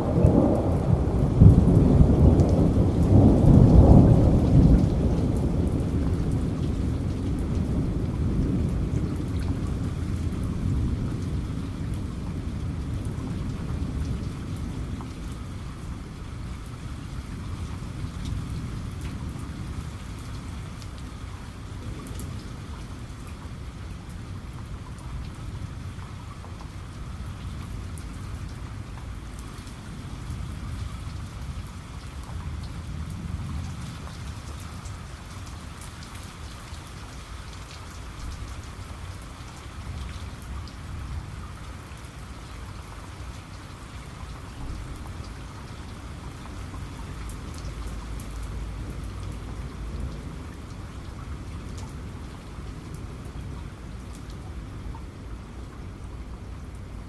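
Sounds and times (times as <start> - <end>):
thunder rumbling: 0.0 - 16.0
steady rain falling: 0.0 - 57.0.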